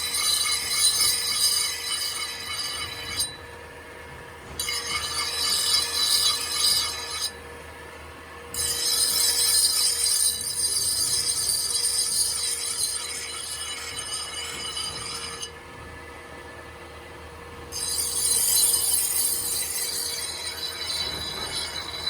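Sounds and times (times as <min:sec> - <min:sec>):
knife blade grinding on power tool: 0:00.0 - 0:03.4, 0:04.6 - 0:07.4, 0:08.5 - 0:15.6, 0:17.7 - 0:22.0.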